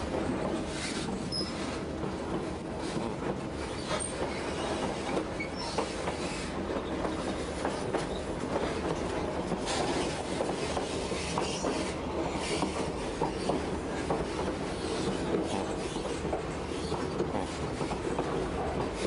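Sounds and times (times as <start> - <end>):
train wheels rumbling on rail: 0.0 - 19.0
faint high wheel squeaks: 0.8 - 1.8, 3.7 - 8.4.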